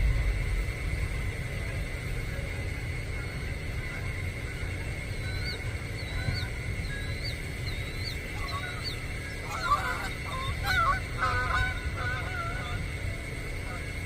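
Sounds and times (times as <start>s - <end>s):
steady low rumble: 0.0s - 14.0s
small bird chirping: 5.0s - 12.8s
harsh honk-like bird calls: 5.2s - 14.0s.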